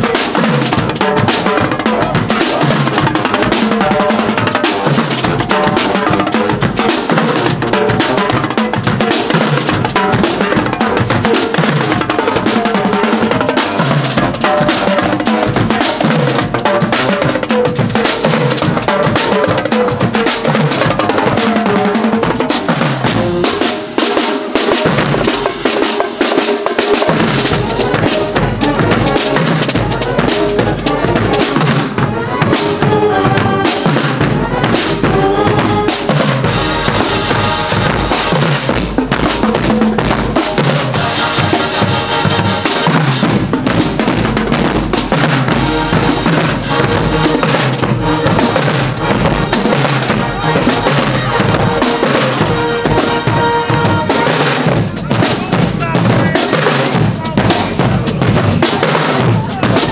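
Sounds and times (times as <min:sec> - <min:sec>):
drumline playing fast beat: 0:00.0 - 0:59.9
held band notes: 0:26.9 - 0:44.6, 0:45.4 - 0:59.9.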